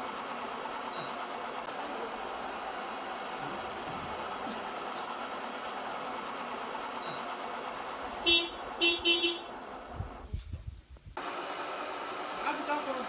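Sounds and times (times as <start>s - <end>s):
short horn-like toots: 8.2s - 9.5s.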